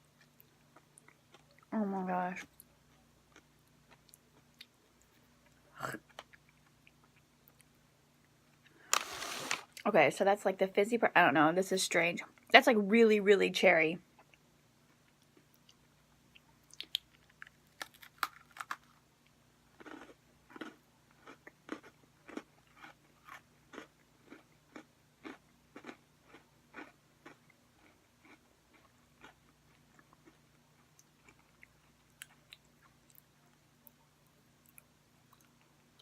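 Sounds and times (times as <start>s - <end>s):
cookie crunching: 15.1s - 33.3s
chewing: 19.8s - 34.0s.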